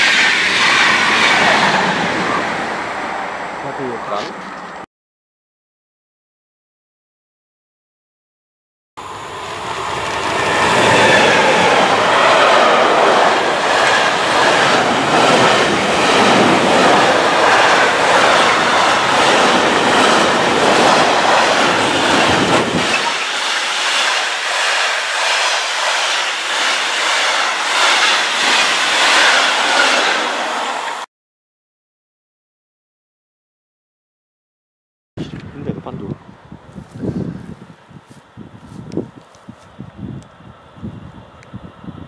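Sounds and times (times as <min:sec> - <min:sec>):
deep train rumble: 0:00.0 - 0:04.8, 0:09.0 - 0:31.0
freight train wheels clattering: 0:09.6 - 0:30.5.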